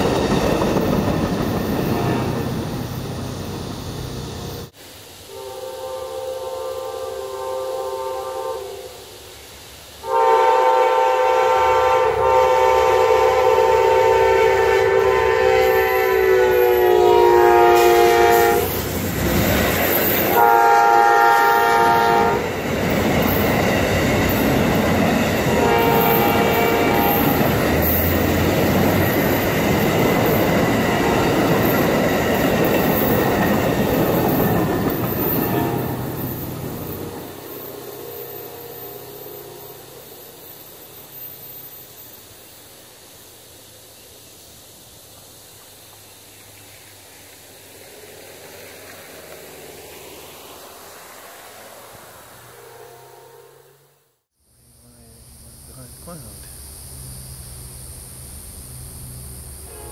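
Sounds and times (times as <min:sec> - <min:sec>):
train wheels on rails: 0:00.0 - 0:07.2, 0:09.0 - 0:52.6
train horn blasts: 0:05.2 - 0:09.0, 0:10.0 - 0:18.8, 0:20.3 - 0:22.5, 0:25.4 - 0:27.6, 0:37.6 - 0:40.1, 0:52.5 - 0:54.1, 0:59.6 - 0:59.9.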